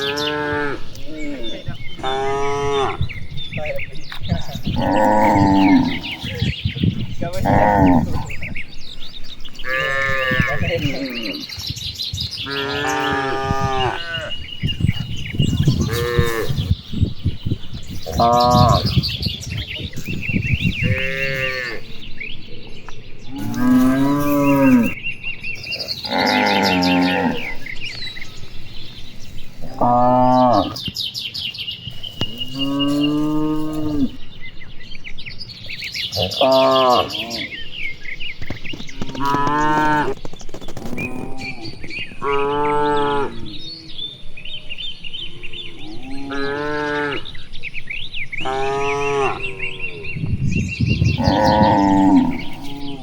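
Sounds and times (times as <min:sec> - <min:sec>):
cattle mooing: 0:00.0 - 0:03.1, 0:04.4 - 0:06.5, 0:07.3 - 0:08.5, 0:09.6 - 0:11.4, 0:12.4 - 0:14.4, 0:15.6 - 0:16.7, 0:18.1 - 0:19.0, 0:20.8 - 0:21.9, 0:23.3 - 0:25.0, 0:25.9 - 0:27.7, 0:29.6 - 0:30.8, 0:32.4 - 0:34.2, 0:36.2 - 0:37.6, 0:51.2 - 0:53.0.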